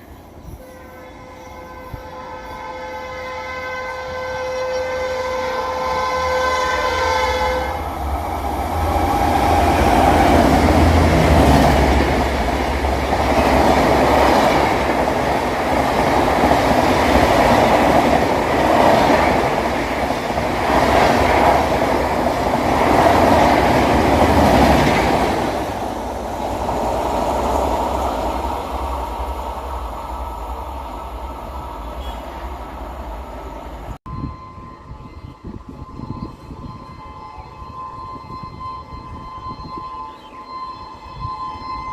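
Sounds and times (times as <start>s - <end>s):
train rushing past: 0.0s - 41.9s
train horn: 0.5s - 8.1s, 31.8s - 32.5s, 34.1s - 41.9s.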